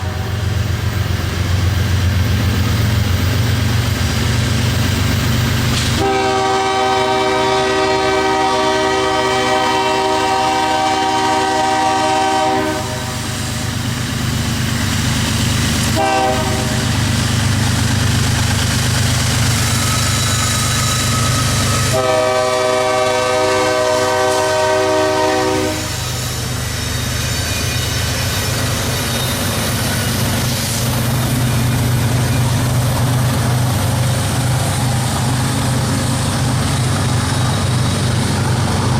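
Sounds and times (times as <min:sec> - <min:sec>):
diesel locomotive horn: 0:00.0 - 0:00.6, 0:05.8 - 0:13.3, 0:15.9 - 0:17.0, 0:21.0 - 0:26.5
train rumbling by: 0:00.0 - 0:38.9.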